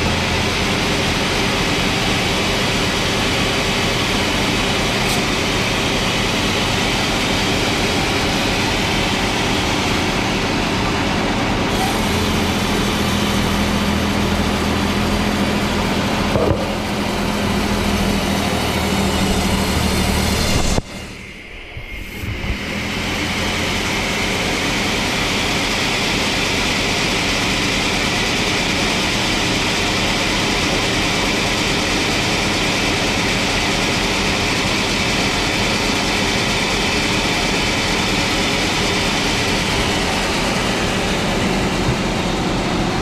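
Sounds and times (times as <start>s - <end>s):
sawmill machinery running: 0.0s - 43.0s
steady low hum: 16.0s - 24.2s.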